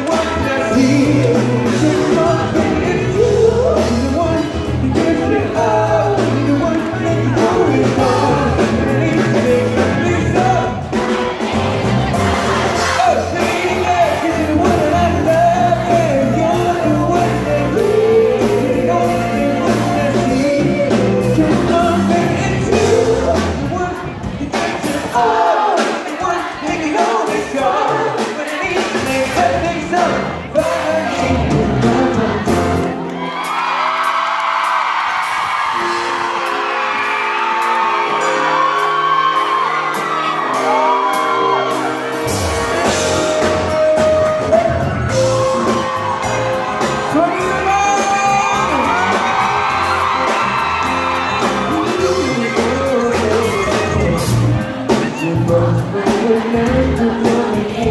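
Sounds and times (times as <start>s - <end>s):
person singing: 0.0s - 11.1s, 12.8s - 33.1s, 35.7s - 57.9s
live pop music with band: 0.0s - 57.9s
audience whooping and shouting: 30.8s - 57.2s.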